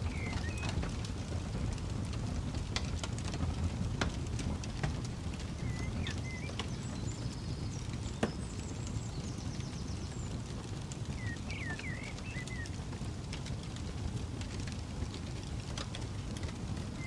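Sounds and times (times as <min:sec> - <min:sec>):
birds chirping: 0:00.0 - 0:00.8, 0:05.5 - 0:12.8
campfire crackling: 0:00.0 - 0:17.0.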